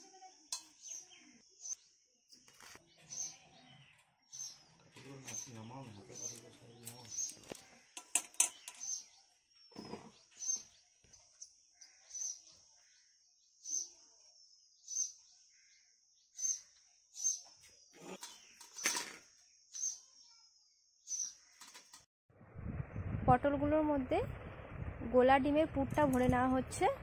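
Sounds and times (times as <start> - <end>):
small bird chirping: 0.0 - 22.0
bamboo sticks knocking on metal: 8.0 - 8.8.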